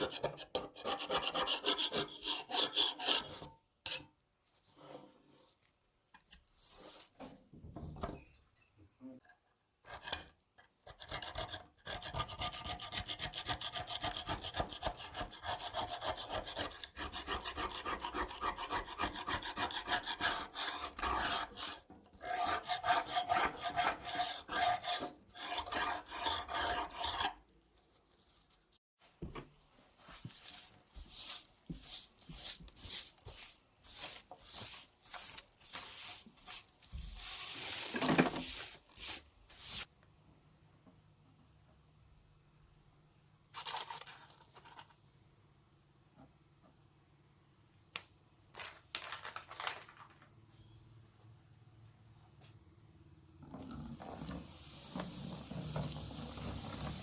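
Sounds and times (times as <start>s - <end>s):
hand file rasping on knife: 0.0s - 4.0s, 10.9s - 27.4s.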